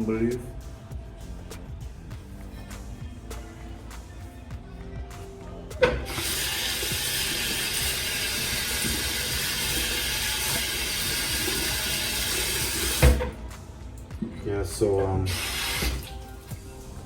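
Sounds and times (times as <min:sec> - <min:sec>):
water running from sink tap: 0:05.8 - 0:13.4, 0:15.0 - 0:16.2.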